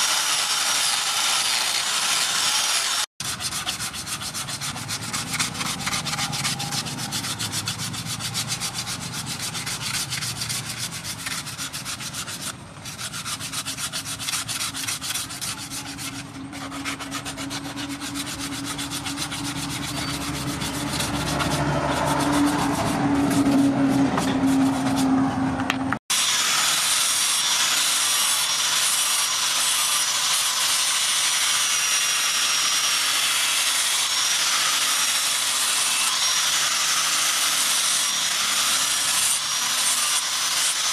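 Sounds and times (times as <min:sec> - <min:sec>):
sandpaper rubbing wood: 0:00.0 - 0:25.2
angle grinder grinding steel: 0:00.0 - 0:25.3, 0:26.1 - 0:40.9.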